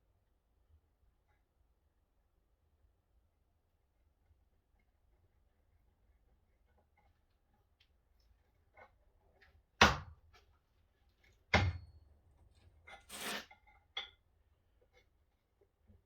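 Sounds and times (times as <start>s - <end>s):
scraping rustle: 12.9s - 13.6s.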